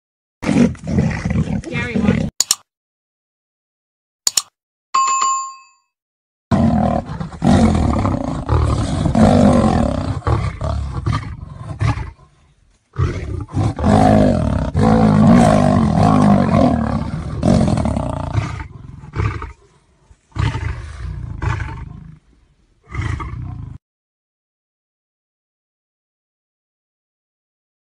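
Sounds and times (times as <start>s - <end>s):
big cat growling and roaring: 0.4s - 2.3s, 6.5s - 23.8s.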